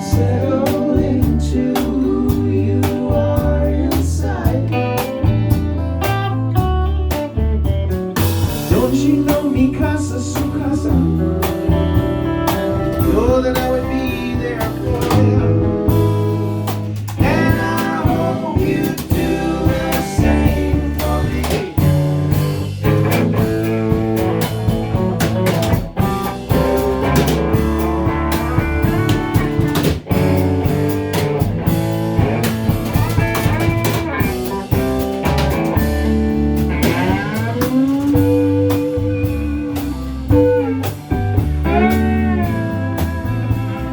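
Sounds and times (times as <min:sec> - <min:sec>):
bass guitar: 0:00.0 - 0:43.9
drum kit: 0:00.0 - 0:43.9
lead guitar: 0:00.0 - 0:43.9.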